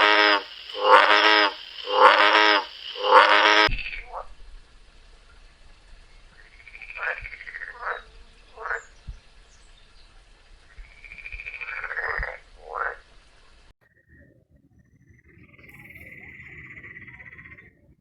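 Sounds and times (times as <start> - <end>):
frog calling: 0.0 - 4.3, 6.4 - 9.0, 10.7 - 13.1, 15.5 - 17.9.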